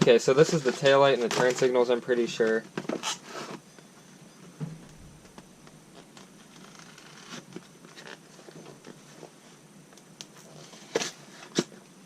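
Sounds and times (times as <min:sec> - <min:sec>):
packaging rustling: 0:04.8 - 0:09.0.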